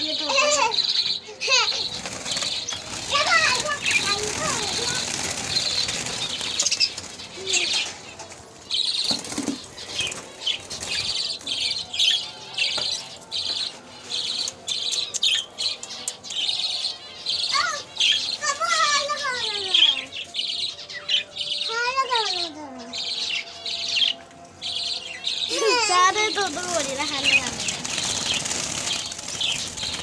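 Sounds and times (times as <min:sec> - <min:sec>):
budgies chirping: 0:00.0 - 0:30.0
wings fluttering: 0:01.5 - 0:12.2, 0:25.5 - 0:30.0.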